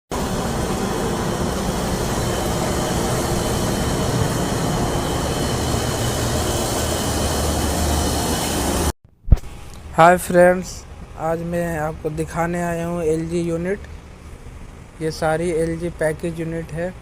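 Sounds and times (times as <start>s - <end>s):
air conditioner fan and compressor: 0.1s - 17.0s
faint high whine: 0.2s - 17.0s.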